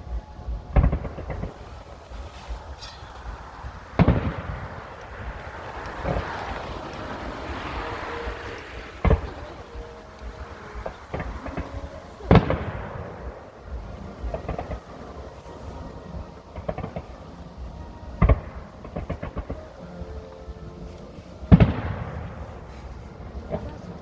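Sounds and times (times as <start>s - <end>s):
crackling firework pops: 0.5s - 24.0s
firework shell bursts: 0.7s - 17.4s.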